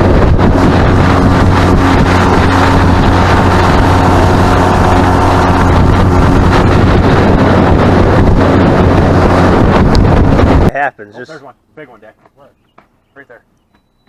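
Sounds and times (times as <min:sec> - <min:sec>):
boat motor running: 0:00.0 - 0:10.7
wind buffeting microphone: 0:00.0 - 0:10.7.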